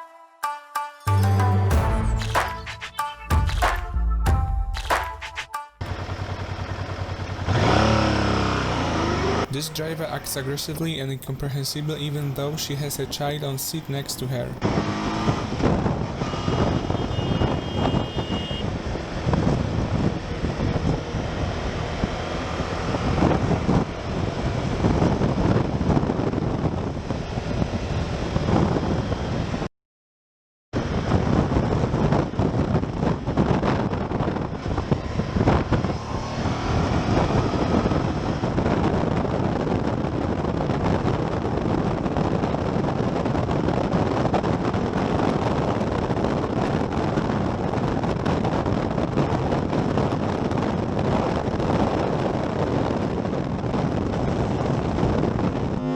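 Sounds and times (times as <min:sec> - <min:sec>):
motorcycle engine: 0:05.8 - 0:09.8, 0:32.9 - 0:42.2
wind rush on microphone: 0:07.4 - 0:29.7, 0:30.8 - 0:55.9.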